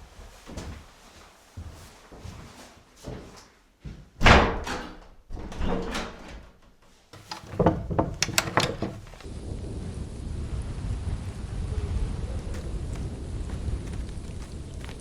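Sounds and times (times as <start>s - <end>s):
clicks and knocks: 7.2s - 9.3s.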